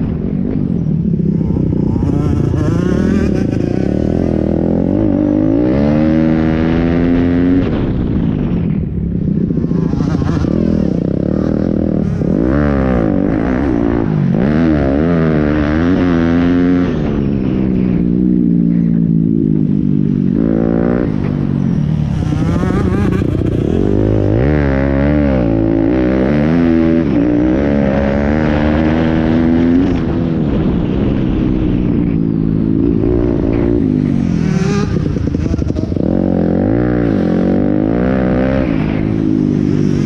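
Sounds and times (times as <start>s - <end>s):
pit bike engine revving: 1.2s - 7.9s, 20.3s - 30.2s.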